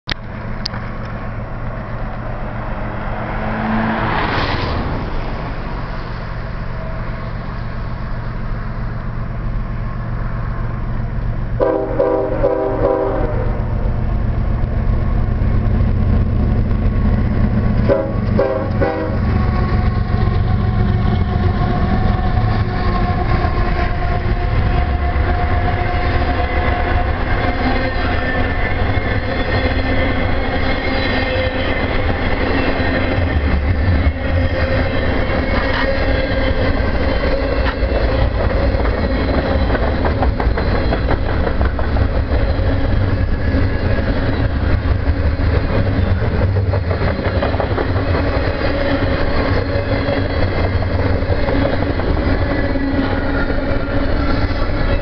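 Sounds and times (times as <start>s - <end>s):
diesel locomotive rumble: 0.1s - 55.0s
freight cars rolling past: 0.2s - 55.0s
train horn blasts: 11.6s - 13.9s, 17.8s - 28.9s.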